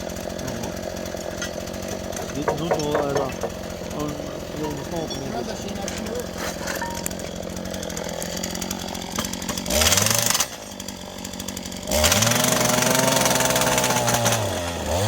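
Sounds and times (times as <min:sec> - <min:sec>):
small petrol engine revving: 0:00.0 - 0:15.0.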